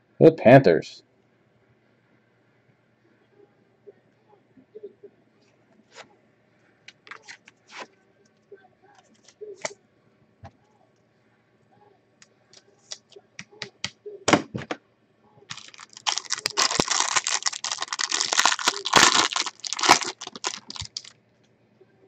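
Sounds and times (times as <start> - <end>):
plastic wrapping tearing and crinkling: 15.5 - 21.1.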